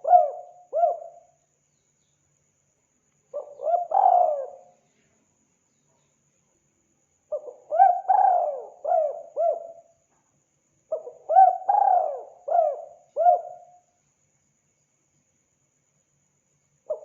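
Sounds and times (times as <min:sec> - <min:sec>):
dove cooing: 0:00.0 - 0:01.2, 0:03.4 - 0:04.7, 0:07.3 - 0:09.9, 0:10.9 - 0:13.7.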